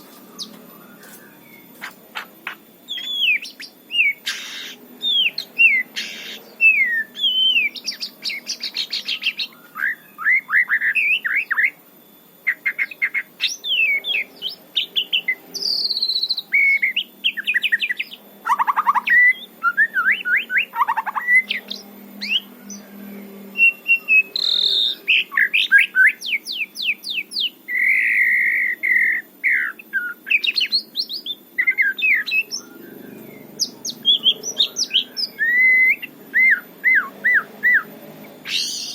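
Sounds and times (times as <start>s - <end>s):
bird singing whistled phrases: 2.9s - 11.8s, 12.5s - 38.9s.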